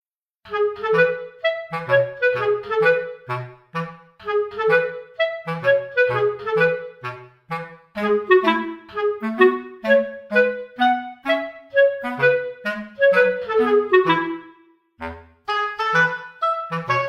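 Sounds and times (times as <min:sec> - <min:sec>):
bouncy woodwind tune: 0:00.4 - 0:17.0.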